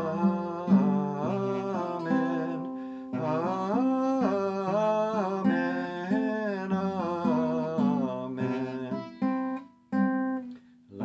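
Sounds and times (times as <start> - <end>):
man singing: 0.0 - 9.6
acoustic guitar: 0.0 - 11.0.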